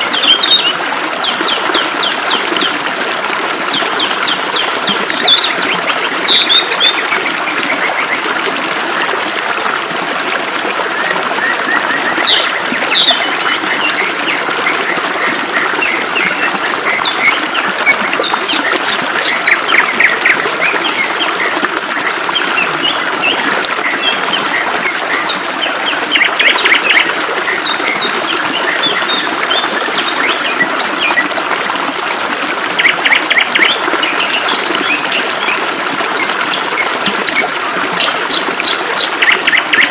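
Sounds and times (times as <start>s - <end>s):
small birds chirping and trilling: 3.7s - 7.2s, 11.7s - 15.0s.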